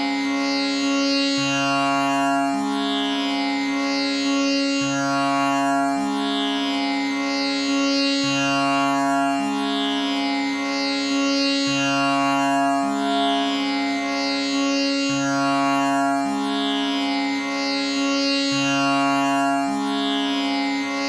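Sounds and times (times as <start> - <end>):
tanpura drone: 0.0 - 21.0.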